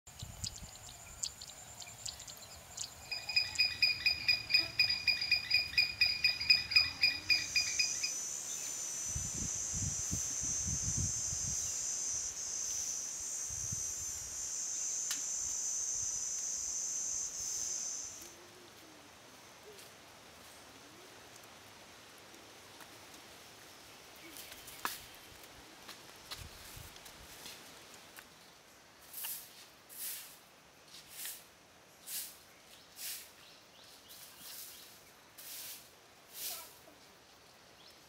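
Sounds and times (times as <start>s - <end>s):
pulsed high insect chirp: 0.1s - 18.4s
high-pitched insect buzz: 0.2s - 18.4s.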